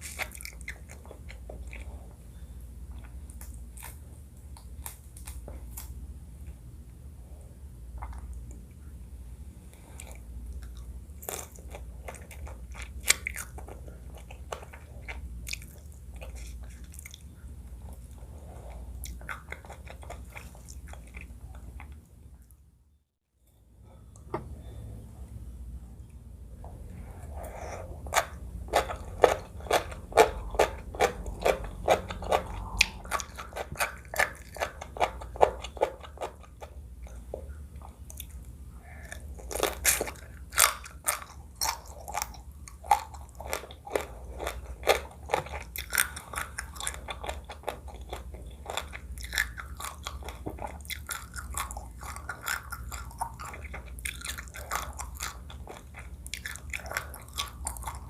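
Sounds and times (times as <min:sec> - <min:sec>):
chewing crunchy food: 0:00.0 - 0:05.9, 0:09.7 - 0:22.2, 0:27.2 - 0:58.0.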